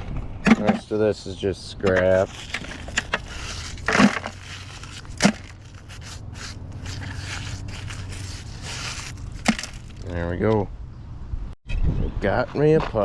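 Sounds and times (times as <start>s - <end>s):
metal scraping and rubbing: 1.8s - 10.2s
scrap metal knocking: 1.9s - 10.2s.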